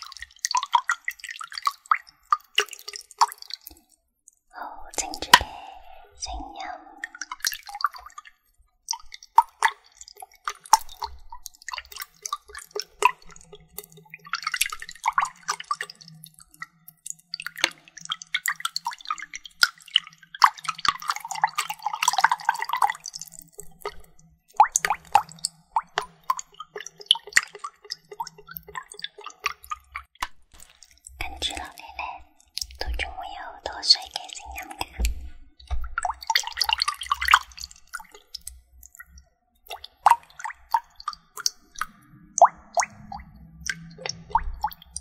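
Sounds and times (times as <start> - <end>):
water drips and plops: 0.0 - 45.0
water splashing: 34.0 - 45.0.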